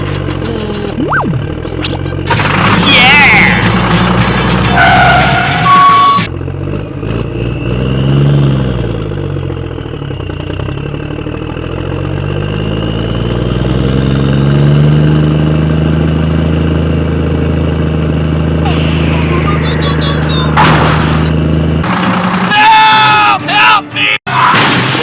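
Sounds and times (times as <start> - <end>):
truck engine revving: 0.0 - 23.1
short electronic tone: 5.6 - 6.3.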